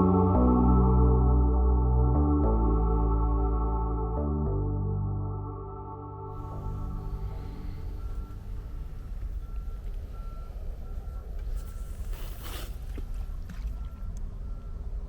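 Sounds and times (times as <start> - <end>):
steady low rumble: 0.0 - 15.0
short electronic beeps: 6.4 - 12.5.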